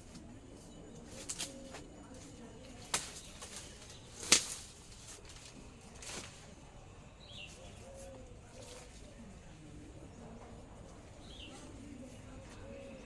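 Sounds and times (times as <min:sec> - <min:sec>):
corn ears snapping: 0:02.8 - 0:06.3.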